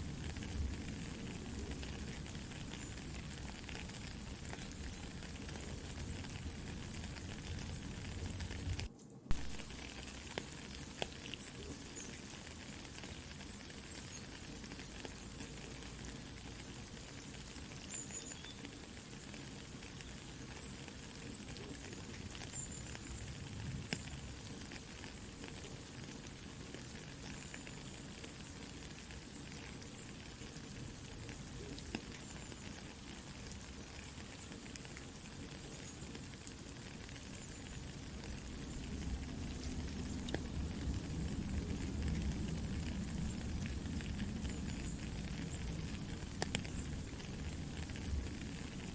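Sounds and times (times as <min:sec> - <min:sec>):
campfire crackling: 0:00.0 - 0:48.9
rain hiss: 0:00.0 - 0:48.9.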